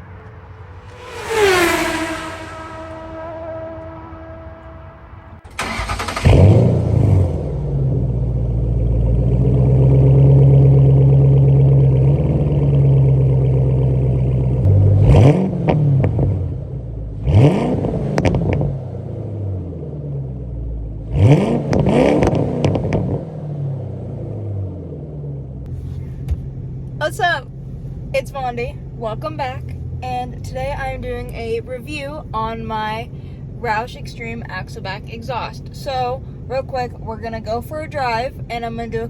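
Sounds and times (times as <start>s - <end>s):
car engine idling: 0.0s - 14.9s, 25.4s - 39.0s
car engine revving: 0.0s - 27.0s
car engine starting: 0.0s - 39.0s.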